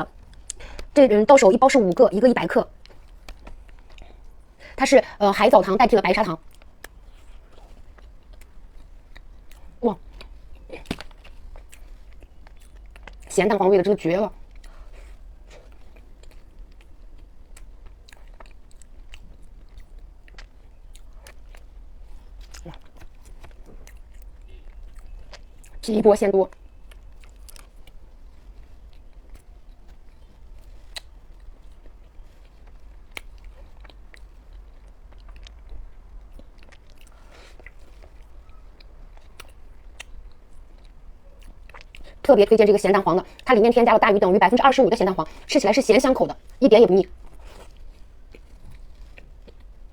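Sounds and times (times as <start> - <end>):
wet chewing mouth clicks: 6.4 - 13.3, 14.3 - 25.8, 26.5 - 42.3
soft crunches: 46.4 - 49.9.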